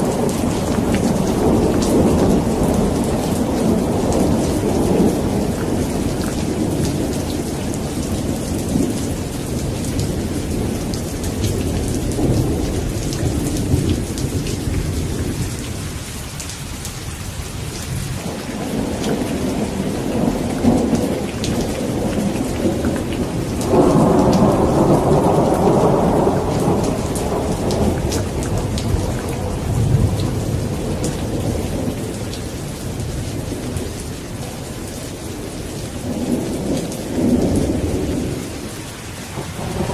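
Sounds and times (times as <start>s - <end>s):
thunder rumbling: 0.0s - 16.1s, 17.6s - 39.9s
steady rain: 0.0s - 39.9s
loud thunderclap: 18.2s - 32.2s, 39.3s - 39.9s.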